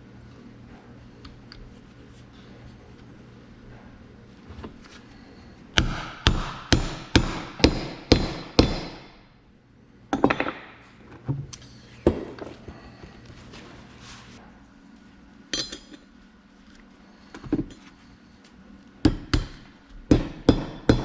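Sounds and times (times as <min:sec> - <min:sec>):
hammer striking metal: 0:05.8 - 0:09.2, 0:19.1 - 0:21.0.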